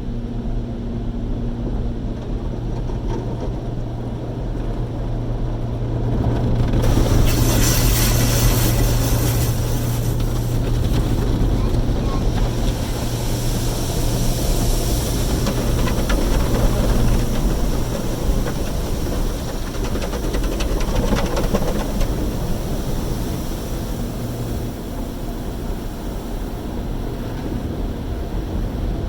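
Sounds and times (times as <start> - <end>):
car wash machinery hum: 0.0 - 29.0
water spray hissing on car: 6.7 - 28.8.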